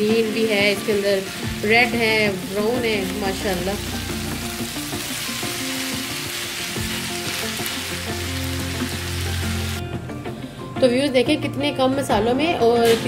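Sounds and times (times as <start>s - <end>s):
vegetables sizzling in a frying pan: 0.0s - 9.8s.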